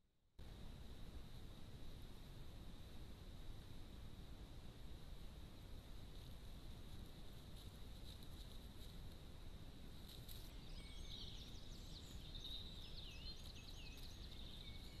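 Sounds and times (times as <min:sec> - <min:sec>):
faint steady hiss: 0:00.4 - 0:15.0
songbird singing: 0:06.5 - 0:15.0.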